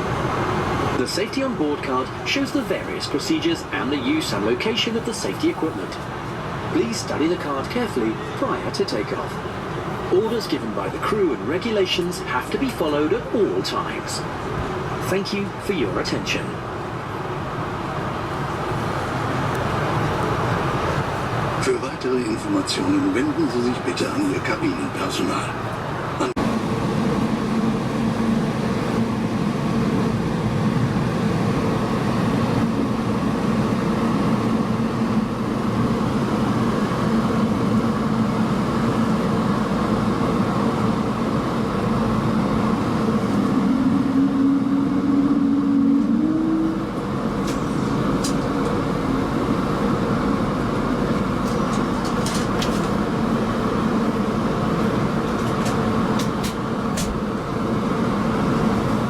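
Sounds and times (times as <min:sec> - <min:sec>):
jet engines and airflow rushing: 0:00.0 - 0:59.0
rising tone: 0:43.0 - 0:48.0.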